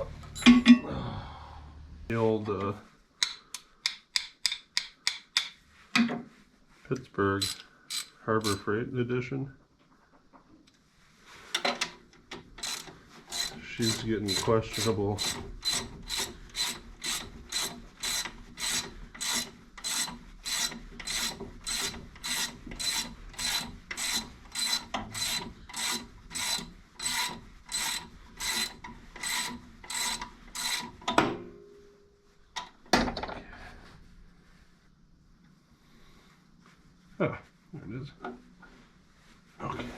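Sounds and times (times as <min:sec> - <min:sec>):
hand ratchet clicking: 0:07.4 - 0:08.7, 0:12.4 - 0:30.9.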